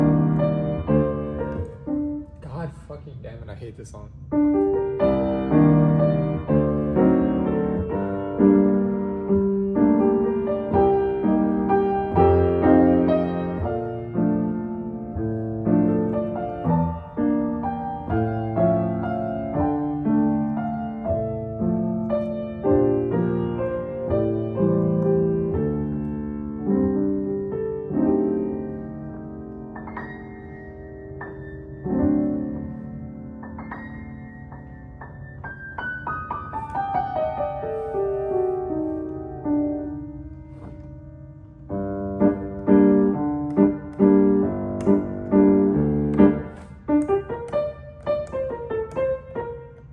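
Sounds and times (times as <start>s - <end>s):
solo piano melody: 0.0s - 2.8s, 4.2s - 49.9s.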